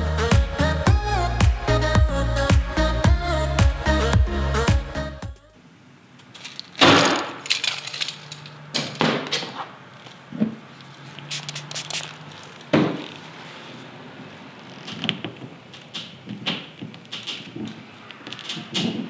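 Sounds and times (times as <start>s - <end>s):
metal tools clacking: 7.4s - 9.0s.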